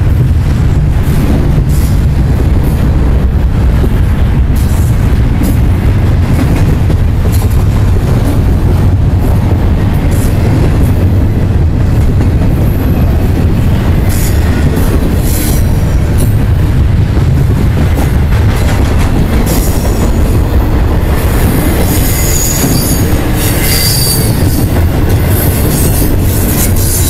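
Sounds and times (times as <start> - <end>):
freight train wheels rumbling: 0.0 - 27.0
high-pitched wheel squeals: 21.8 - 27.0.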